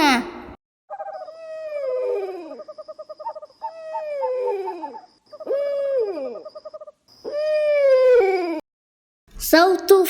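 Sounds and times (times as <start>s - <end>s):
owl hooting with trill: 0.9s - 8.6s.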